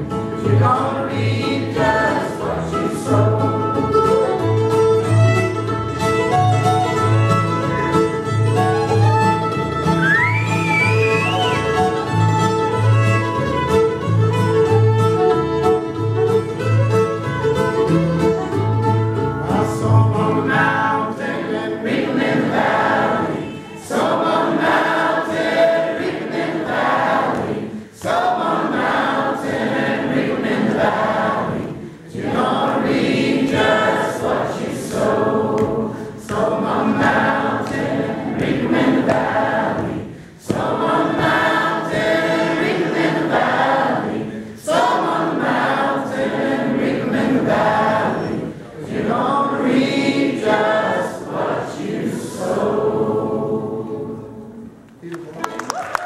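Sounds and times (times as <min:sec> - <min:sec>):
voices singing in harmony: 0:00.0 - 0:04.5, 0:19.4 - 0:54.9
string band playing: 0:00.0 - 0:54.2.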